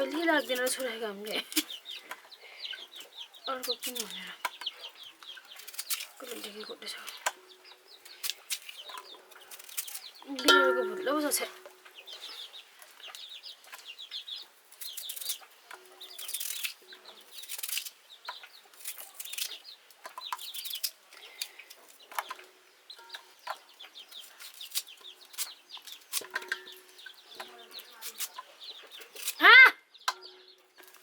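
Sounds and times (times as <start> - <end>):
chickens clucking: 0.0 - 9.6, 10.2 - 14.6, 21.4 - 29.4.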